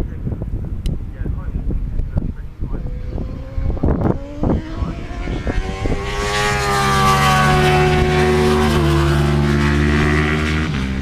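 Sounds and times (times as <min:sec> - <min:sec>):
racing motorcycle engine passing: 0:02.4 - 0:11.0.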